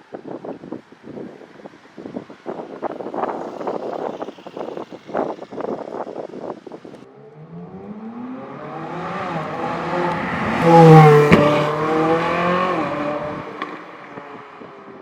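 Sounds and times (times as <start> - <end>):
sports car accelerating past: 7.1 - 14.7.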